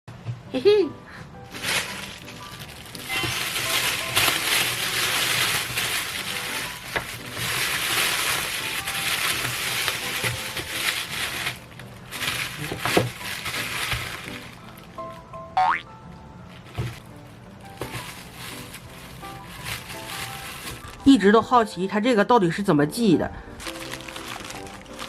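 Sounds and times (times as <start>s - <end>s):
plastic bag crinkling: 1.5s - 15.2s, 16.5s - 21.1s, 23.6s - 25.0s.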